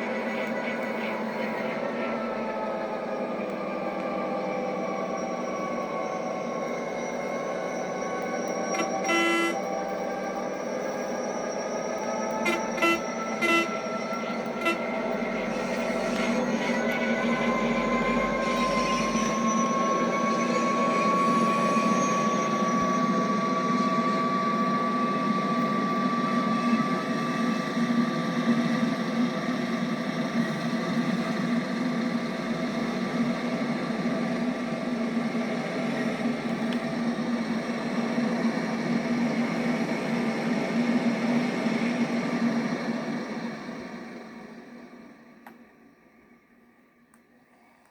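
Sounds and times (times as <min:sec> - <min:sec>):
train wheels rumbling on rail: 0:00.0 - 0:45.6
thin high whine: 0:05.0 - 0:29.2.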